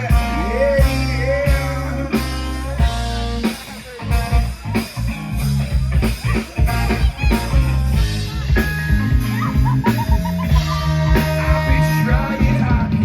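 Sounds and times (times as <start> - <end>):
drums: 0.0 - 13.0
electric guitar: 0.0 - 13.0
live band playing: 0.0 - 13.0.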